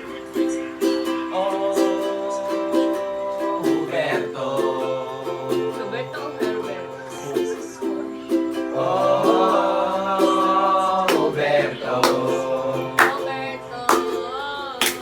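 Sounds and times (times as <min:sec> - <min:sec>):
ukulele plucked chords: 0:00.0 - 0:15.0.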